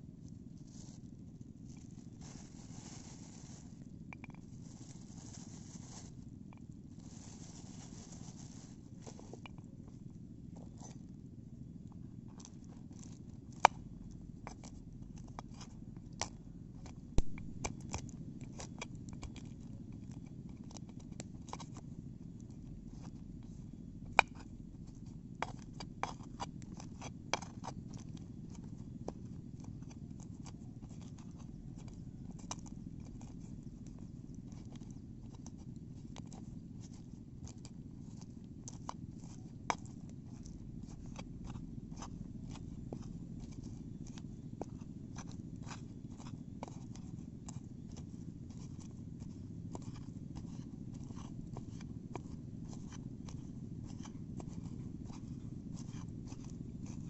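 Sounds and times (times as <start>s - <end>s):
steady low rumble: 15.8s - 18.6s.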